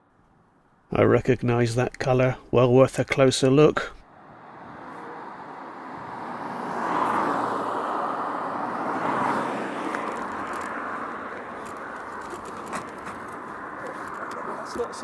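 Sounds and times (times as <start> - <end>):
cars passing on street: 3.8 - 15.0.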